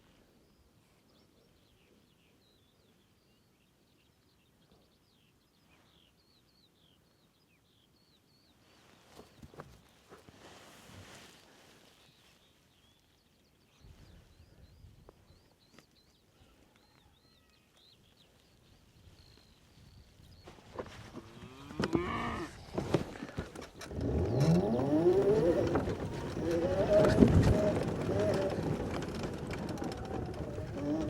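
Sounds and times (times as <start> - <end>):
faint bird chirps: 11.2 - 21.7
cow mooing: 21.3 - 22.6.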